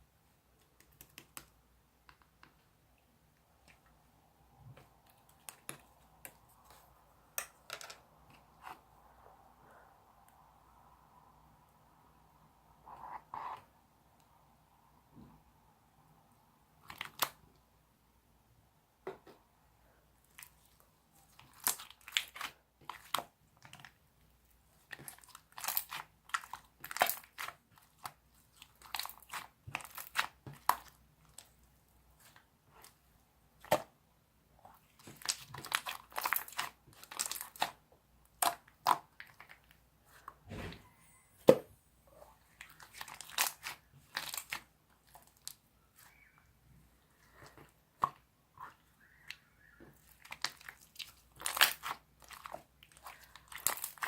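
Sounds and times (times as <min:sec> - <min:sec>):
slime crackling and popping: 0:42.7 - 0:45.6, 0:50.1 - 0:54.0.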